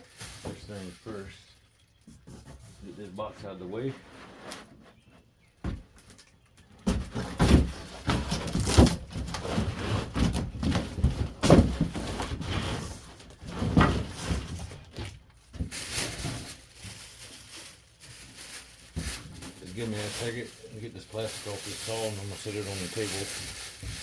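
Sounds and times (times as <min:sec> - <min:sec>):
cardboard scraping and rubbing: 0:02.1 - 0:05.3, 0:06.9 - 0:14.9
knocks and thumps: 0:05.6 - 0:05.9, 0:06.8 - 0:15.8.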